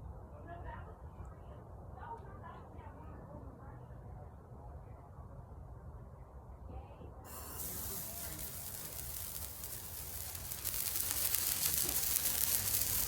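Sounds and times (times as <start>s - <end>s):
firework spewing with hiss: 7.3s - 13.0s.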